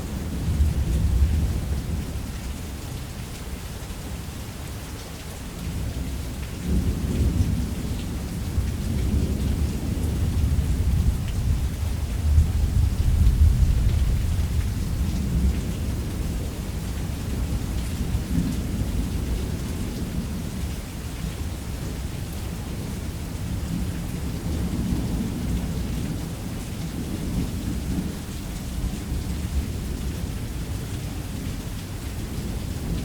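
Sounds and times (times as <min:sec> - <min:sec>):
heavy rain: 0:00.0 - 0:33.0
low rolling thunder: 0:06.6 - 0:16.6.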